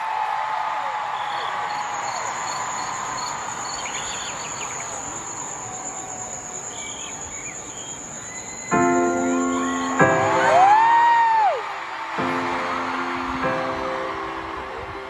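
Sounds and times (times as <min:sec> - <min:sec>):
stadium crowd noise: 0:00.0 - 0:15.0
crickets chirring: 0:01.2 - 0:10.2.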